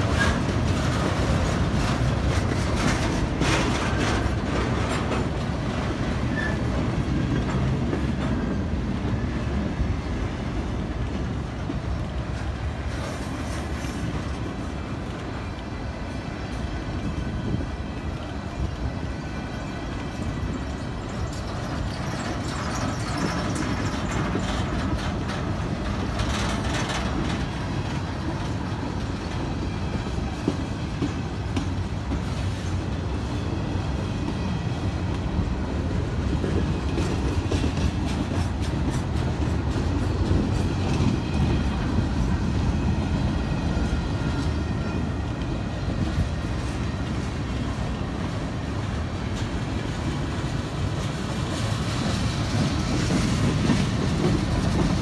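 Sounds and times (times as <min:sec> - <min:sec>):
wheels clicking over rail joints: 0:00.0 - 0:09.7, 0:16.4 - 0:55.0
train wheels rumbling on rail: 0:00.0 - 0:55.0
faint wheel squeal: 0:06.3 - 0:06.7.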